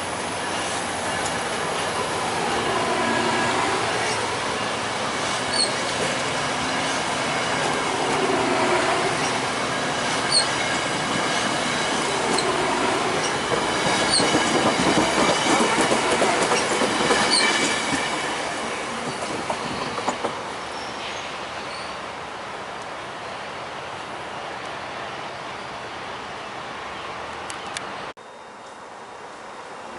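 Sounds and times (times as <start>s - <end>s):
train wheels on rails: 0.0s - 22.2s
high wheel squeals: 2.7s - 15.7s, 16.3s - 18.5s.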